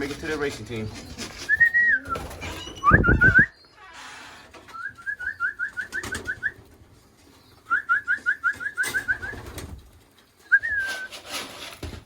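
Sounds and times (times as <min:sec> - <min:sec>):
person whistling: 0:10.5 - 0:11.2.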